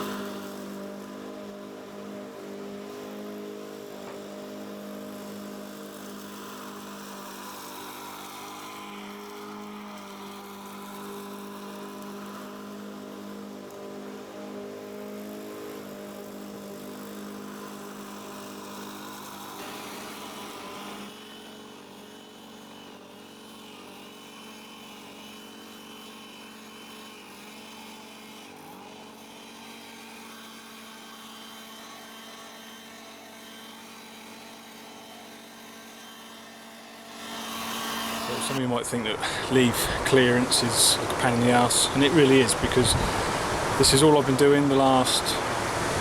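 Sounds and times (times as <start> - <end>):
small petrol engine running: 0.0 - 43.8.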